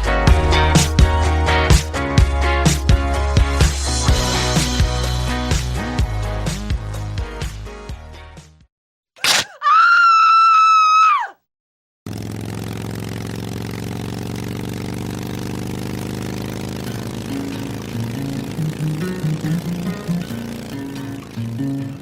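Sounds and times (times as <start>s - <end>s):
sharp click: 9.2s - 9.6s
high cry-like tone: 9.2s - 11.4s.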